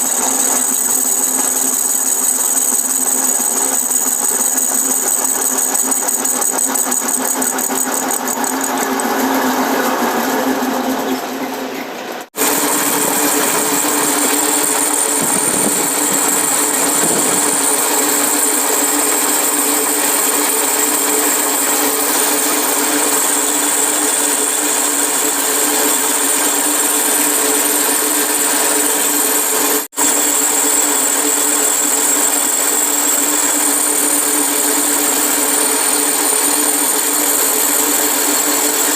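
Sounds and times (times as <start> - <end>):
electric power tool running: 0.0 - 11.2, 12.4 - 38.9.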